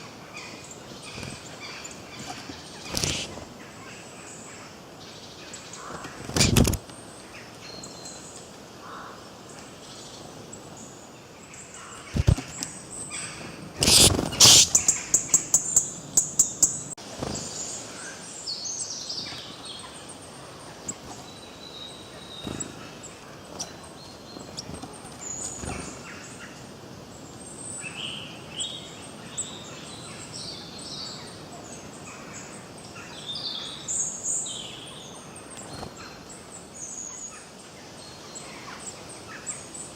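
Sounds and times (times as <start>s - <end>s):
background hiss: 0.0s - 39.9s
birds chirping and singing: 0.3s - 4.6s, 11.5s - 39.9s
sharp loud sound: 13.8s - 14.8s.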